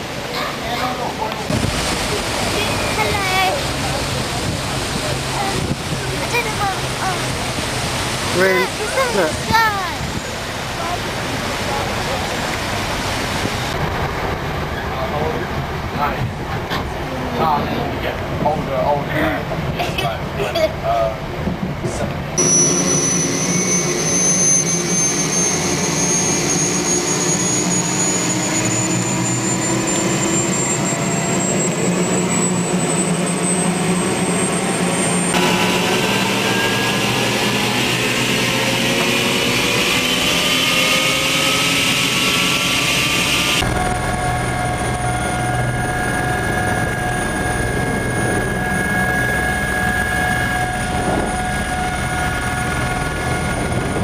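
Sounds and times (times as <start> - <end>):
helicopter turbine and rotor: 1.4 - 54.0.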